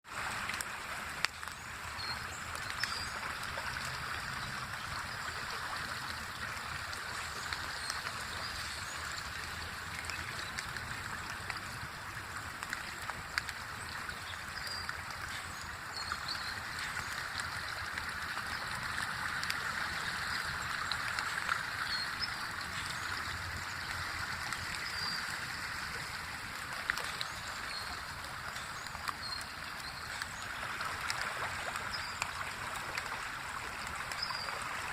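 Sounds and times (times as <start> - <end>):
creek water rushing: 0.0 - 34.9.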